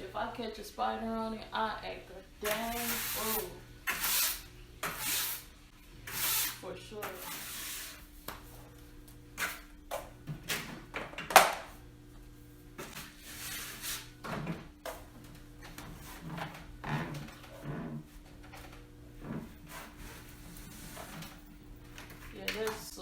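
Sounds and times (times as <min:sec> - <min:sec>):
broom brushing treadmill: 0:02.4 - 0:08.8, 0:12.8 - 0:23.0.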